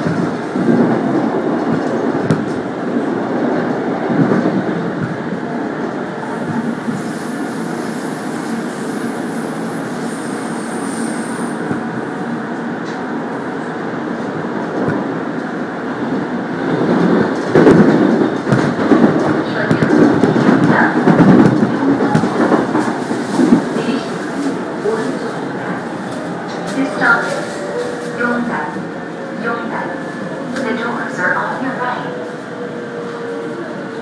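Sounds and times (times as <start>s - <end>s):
train wheels rumbling on rails: 0.0s - 34.0s
train knocks: 16.2s - 25.9s.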